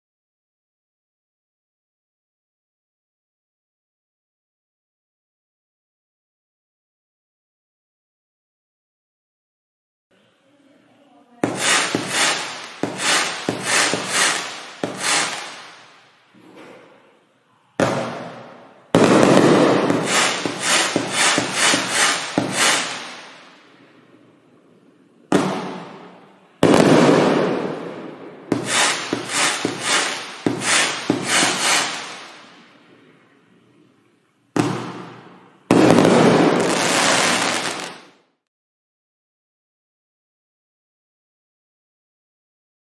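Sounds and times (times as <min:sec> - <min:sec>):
fireworks bangs: 0:11.4 - 0:16.4, 0:17.8 - 0:24.1, 0:25.3 - 0:33.1, 0:34.6 - 0:38.3.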